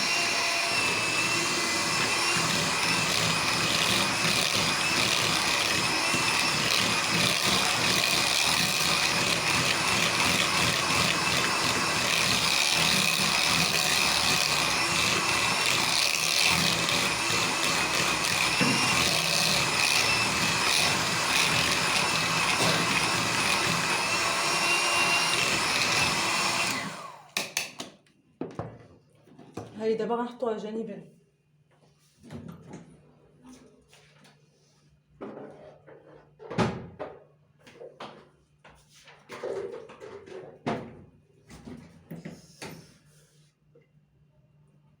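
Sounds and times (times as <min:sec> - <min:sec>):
electric mixer whining: 0:00.0 - 0:27.8.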